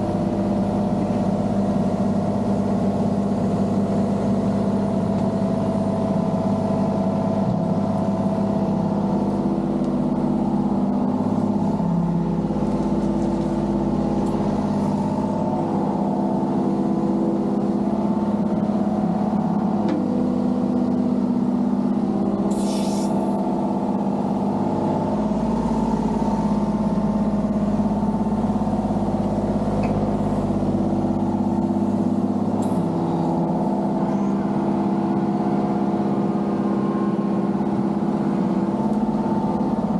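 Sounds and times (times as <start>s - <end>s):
excavator engine running: 0.0s - 39.9s
short hiss: 22.5s - 23.2s.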